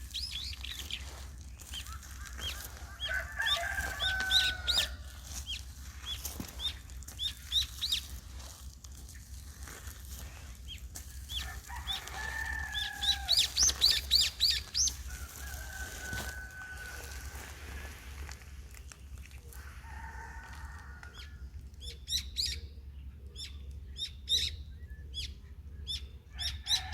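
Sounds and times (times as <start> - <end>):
small birds chirping: 0.0 - 19.7, 21.1 - 26.6
low steady hum: 0.0 - 26.9
rooster crowing: 1.0 - 5.5, 11.3 - 18.2, 19.5 - 21.6, 26.3 - 26.9.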